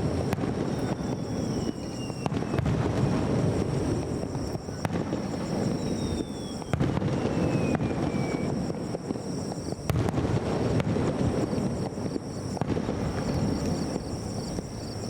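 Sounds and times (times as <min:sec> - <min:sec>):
fireworks bursting with sharp cracks: 0:00.0 - 0:15.0
thin falling whistle: 0:00.6 - 0:03.2, 0:05.5 - 0:08.6.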